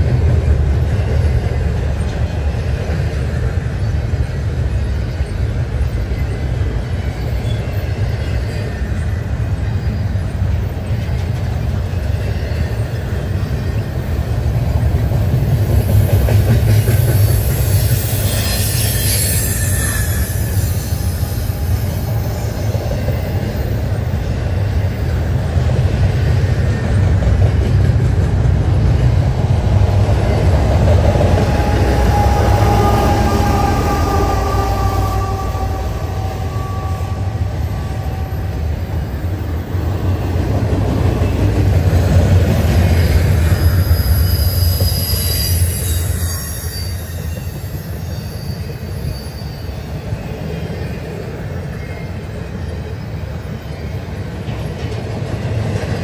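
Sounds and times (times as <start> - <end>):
freight train wheels rumbling: 0.0 - 56.0
high-pitched wheel squeal: 16.9 - 23.8, 31.3 - 39.2, 42.8 - 50.4.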